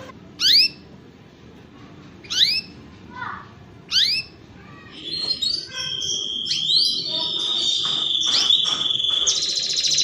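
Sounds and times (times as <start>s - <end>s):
canary singing: 0.0s - 1.0s, 2.2s - 2.9s, 3.8s - 10.0s
canary rattling trill: 0.4s - 0.8s, 2.2s - 2.8s, 3.8s - 10.0s.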